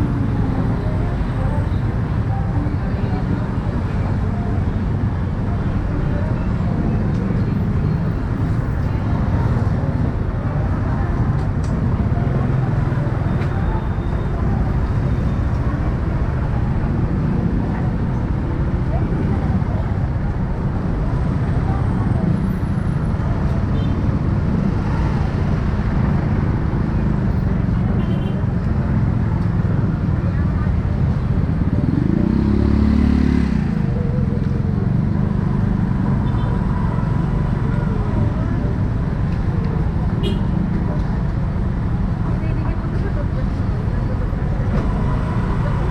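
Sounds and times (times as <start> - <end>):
city traffic: 0.0 - 45.9
road noise: 0.0 - 45.9.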